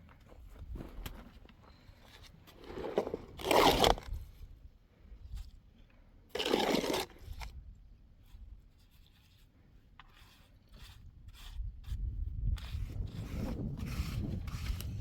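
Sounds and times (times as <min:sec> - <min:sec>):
loud scrape: 0:02.6 - 0:04.2, 0:06.3 - 0:07.5
faint scrapes: 0:05.3 - 0:07.6.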